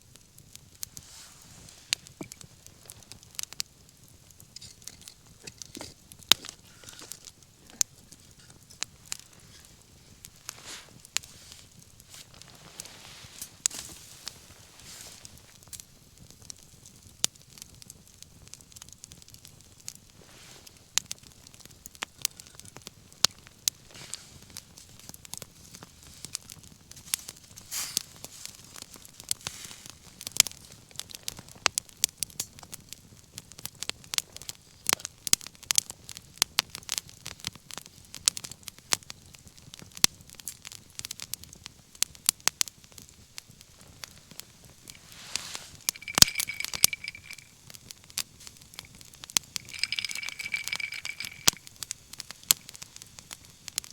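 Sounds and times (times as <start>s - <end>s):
wood fire crackling: 0.0s - 53.9s
fire hissing: 0.1s - 17.1s, 18.4s - 31.0s, 42.8s - 53.9s
burning wood popping: 0.1s - 53.9s.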